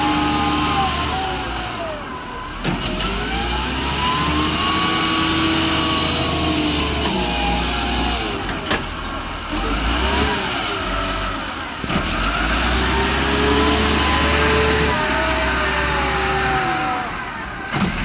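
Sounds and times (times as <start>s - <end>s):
excavator diesel engine under load: 0.0s - 18.0s.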